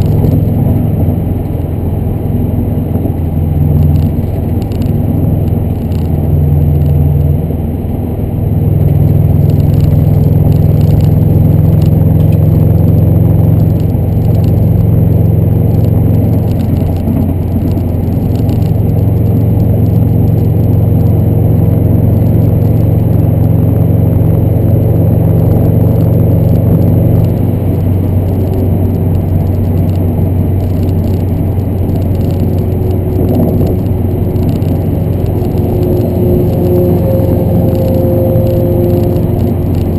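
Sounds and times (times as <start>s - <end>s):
car engine exhaust drone: 0.0s - 39.9s.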